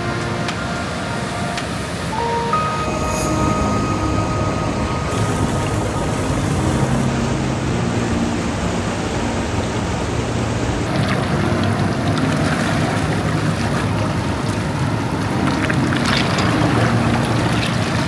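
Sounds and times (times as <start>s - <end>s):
rushing wind or water: 0.0s - 18.0s.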